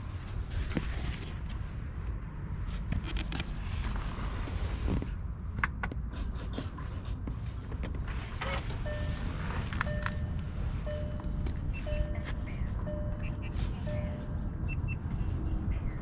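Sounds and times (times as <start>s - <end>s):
steady low rumble: 7.3s - 16.0s
simple tune of held tones: 8.9s - 14.8s.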